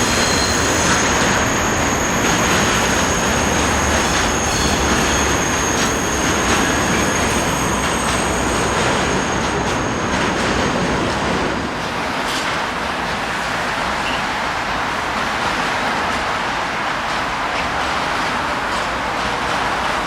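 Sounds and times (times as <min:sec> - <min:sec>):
high wheel squeal: 0:00.0 - 0:10.8
train rolling on rails: 0:00.0 - 0:20.0.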